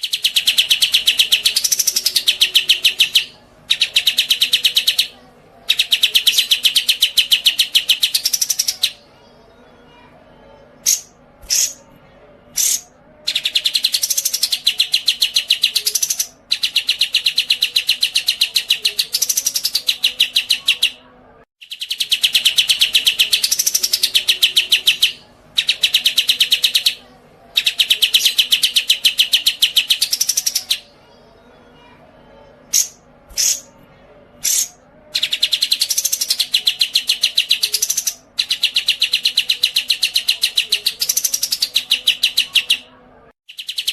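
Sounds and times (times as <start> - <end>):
songbird chirp: 0.0 - 43.9.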